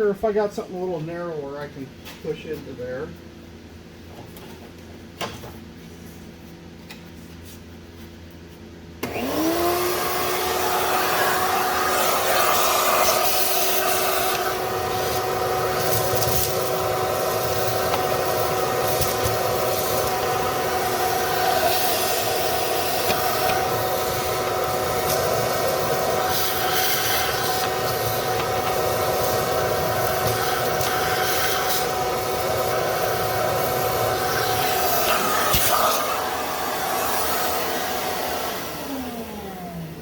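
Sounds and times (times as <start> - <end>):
shop vac motor whine: 8.9 - 40.0
vacuum sucking debris: 9.0 - 39.1.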